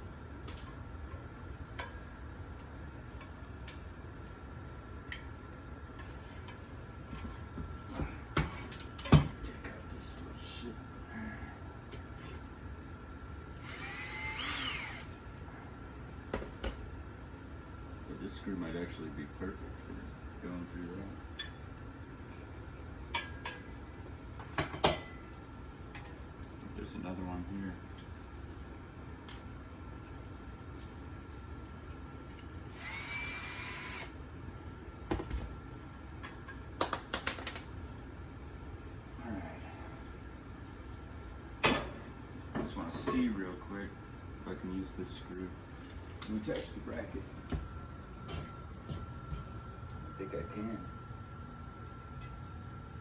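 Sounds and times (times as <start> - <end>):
power drill spinning: 13.6 - 15.2, 32.7 - 34.2.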